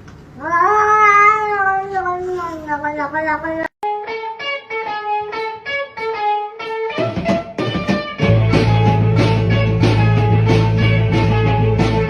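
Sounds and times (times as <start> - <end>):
electric guitar picking notes: 3.8 - 12.0
full band with heavy bass: 7.0 - 12.0.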